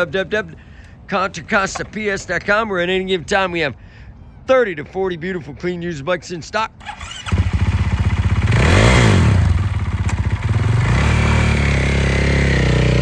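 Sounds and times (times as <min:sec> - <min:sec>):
motorcycle engine starting and idling: 0:06.8 - 0:13.0.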